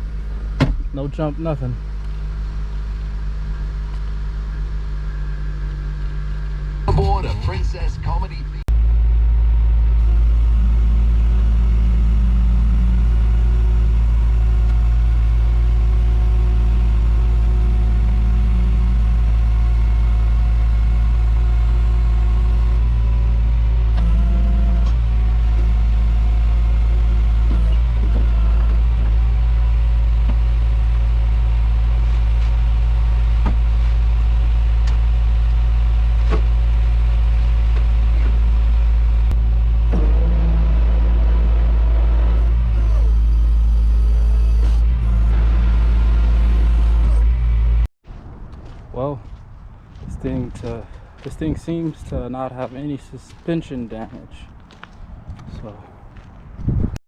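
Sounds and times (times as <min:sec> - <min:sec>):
motor vehicle engine rumble: 0:00.0 - 0:57.0.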